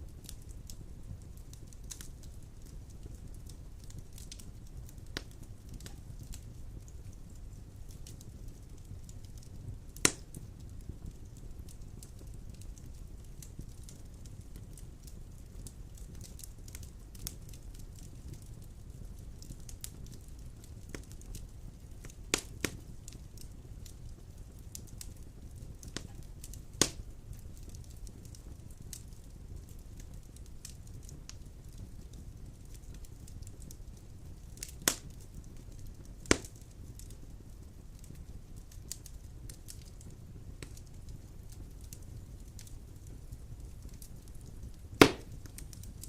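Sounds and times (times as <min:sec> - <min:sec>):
wood fire crackling: 0:00.0 - 0:46.0
sharp fire pops: 0:00.1 - 0:46.0.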